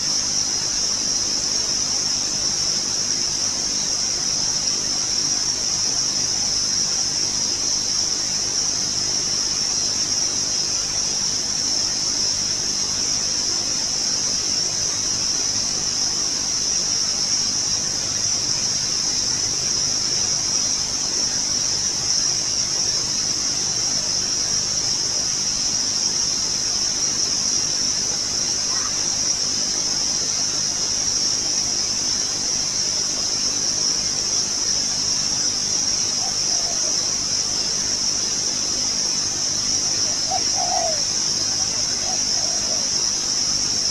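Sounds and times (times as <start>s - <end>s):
insect chorus trilling: 0.0s - 43.9s
faint bird calls: 28.6s - 29.2s, 36.0s - 37.9s, 39.8s - 43.3s.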